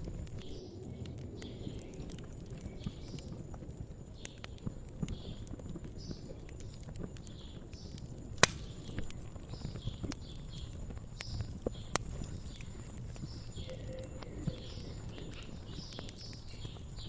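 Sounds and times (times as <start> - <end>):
low rumble of burning: 0.0 - 17.0
wood fire crackling: 0.0 - 17.0
sharp loud pop: 8.4 - 8.7.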